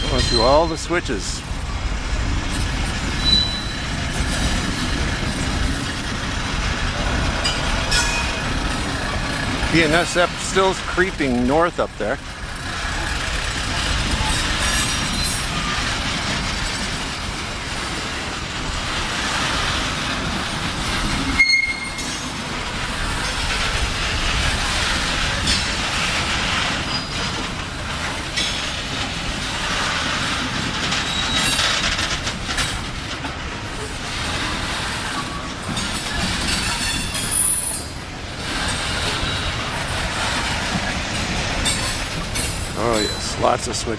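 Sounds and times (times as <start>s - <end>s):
freight train rumbling: 0.0s - 43.9s
wheels clicking over rail joints: 0.0s - 43.9s
high-pitched flange squeals: 3.2s - 3.9s.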